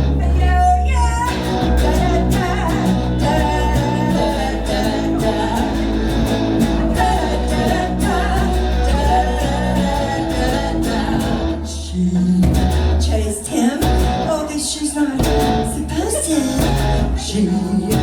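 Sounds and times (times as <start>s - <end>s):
live pop-rock band: 0.0s - 18.0s
person singing: 0.0s - 18.0s.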